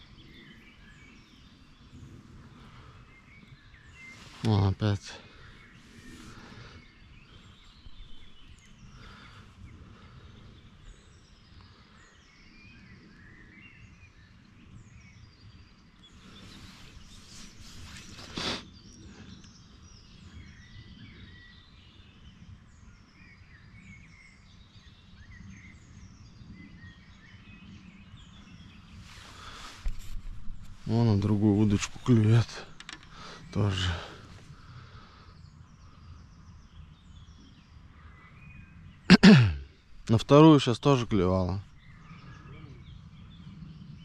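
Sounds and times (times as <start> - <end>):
small birds chirping: 0.0 - 44.0
brief rustle: 16.6 - 18.6, 29.0 - 30.9.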